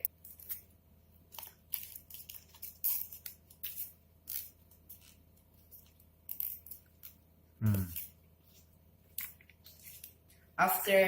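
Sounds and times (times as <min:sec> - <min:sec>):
foam and tape crackling and rustling: 0:00.1 - 0:07.2, 0:07.9 - 0:11.0.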